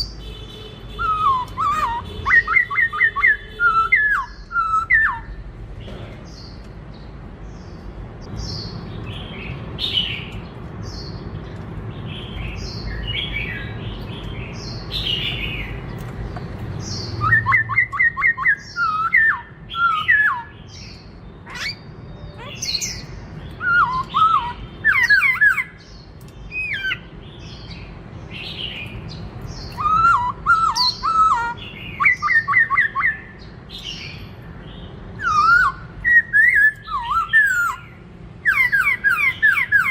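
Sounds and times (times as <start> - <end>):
bird singing chirps and squawks: 0.0 - 39.9
clear whistled bird notes: 1.0 - 5.4, 35.2 - 39.9.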